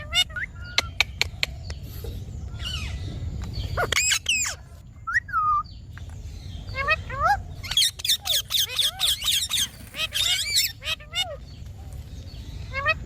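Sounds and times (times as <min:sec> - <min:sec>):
parrot sharp chirping calls: 0:07.8 - 0:11.0
parrot gliding call: 0:08.3 - 0:10.9.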